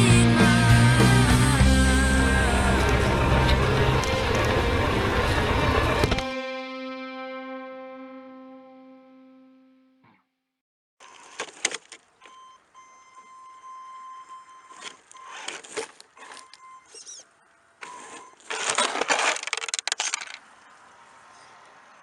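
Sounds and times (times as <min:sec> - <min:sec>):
electric motor whine: 0:00.6 - 0:06.4
toy car rattling on rough ground: 0:11.0 - 0:12.1, 0:14.7 - 0:20.6.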